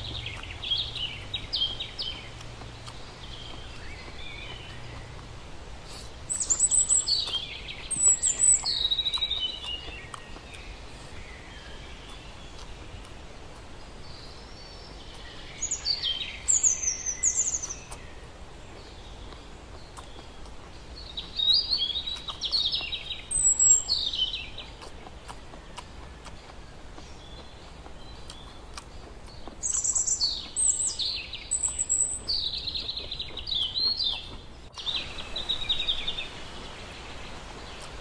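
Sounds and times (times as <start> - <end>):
bird singing: 0.0 - 38.0
steady low hiss: 0.0 - 38.0.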